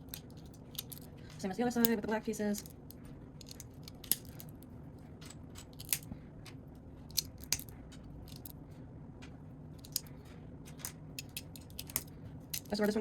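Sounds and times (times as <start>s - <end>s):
faint background hum: 0.0s - 13.0s
plastic bricks clicking: 0.1s - 1.1s, 7.1s - 7.7s, 8.3s - 8.6s, 9.8s - 10.1s, 10.7s - 13.0s.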